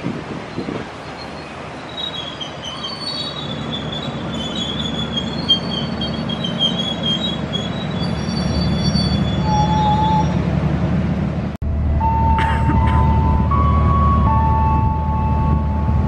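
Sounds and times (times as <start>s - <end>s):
rumble of wheels on rails: 0.0s - 16.0s
train wheels squealing: 0.5s - 10.4s.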